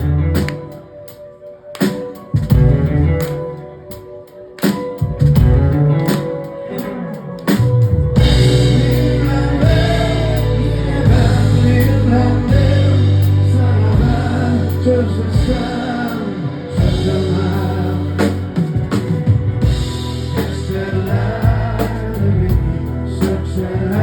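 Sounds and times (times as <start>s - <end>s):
bass groove: 0.0s - 0.6s, 2.4s - 3.3s, 5.2s - 6.2s, 7.6s - 24.0s
live rock band playing: 0.0s - 24.0s.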